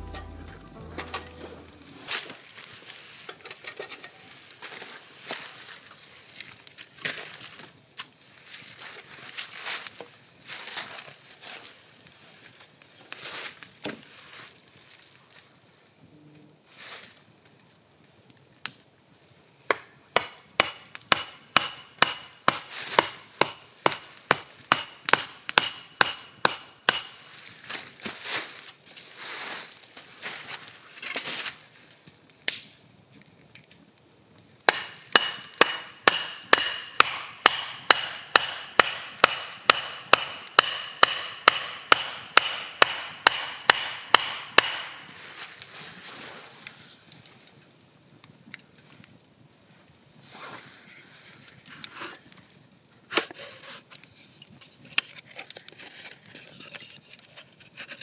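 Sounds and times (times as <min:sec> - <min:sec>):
knife chopping on cutting board: 0:34.7 - 0:44.9.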